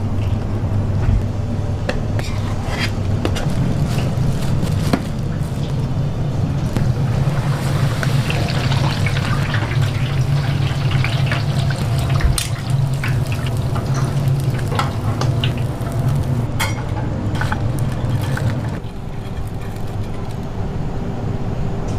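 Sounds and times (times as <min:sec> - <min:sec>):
steady low hum: 0:00.0 - 0:21.9
liquid hissing: 0:07.0 - 0:16.5.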